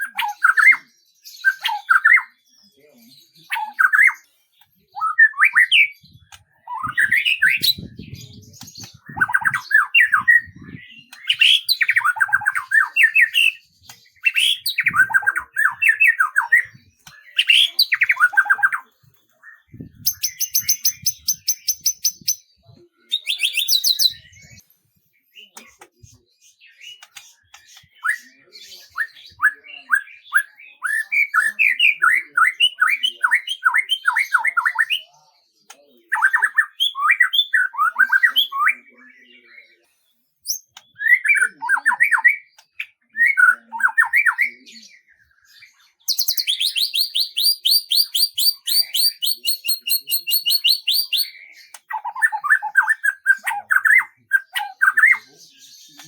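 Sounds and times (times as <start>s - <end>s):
songbirds whistling: 0.0s - 56.0s.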